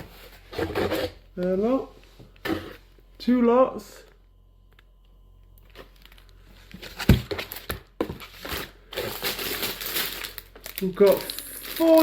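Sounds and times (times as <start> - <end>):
food packaging crinkling: 5.6 - 12.0.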